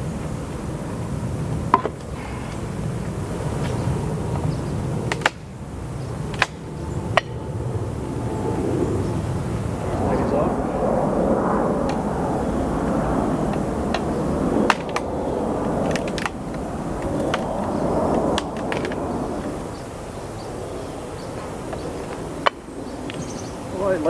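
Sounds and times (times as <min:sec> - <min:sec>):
low uneven rumble: 0:00.0 - 0:24.0
wooden hive parts clicking and knocking: 0:05.1 - 0:05.5, 0:06.3 - 0:06.6, 0:13.5 - 0:19.1.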